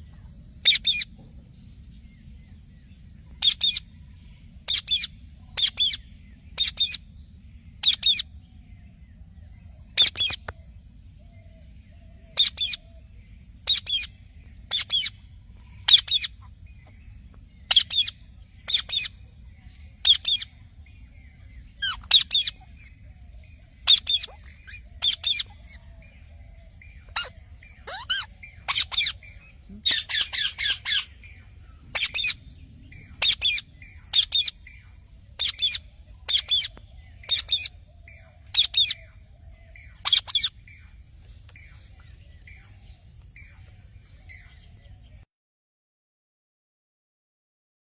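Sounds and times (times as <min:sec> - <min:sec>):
steady low background hum: 0:00.0 - 0:45.2
parrot chirping calls: 0:00.6 - 0:01.2, 0:03.4 - 0:03.9, 0:04.7 - 0:07.1, 0:07.7 - 0:08.3, 0:09.9 - 0:10.5, 0:12.2 - 0:13.0, 0:13.6 - 0:15.2, 0:15.8 - 0:16.9, 0:17.6 - 0:19.2, 0:19.8 - 0:20.6, 0:21.6 - 0:40.8.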